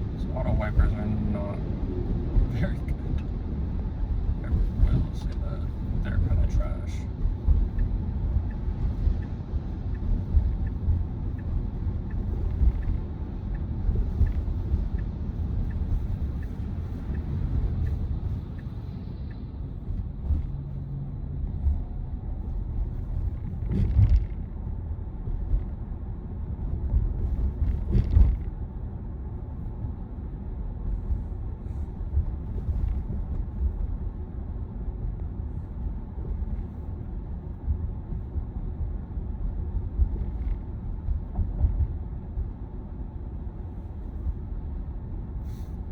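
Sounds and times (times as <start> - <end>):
road and tyre rumble: 0.0 - 45.9
faint regular ticking: 7.6 - 19.9.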